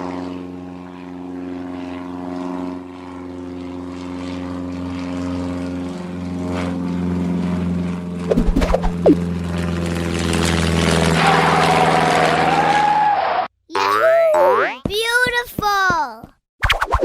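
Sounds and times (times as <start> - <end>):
cartoon motor drone: 0.0 - 9.6, 10.4 - 14.9
swooping chirps: 8.3 - 9.2.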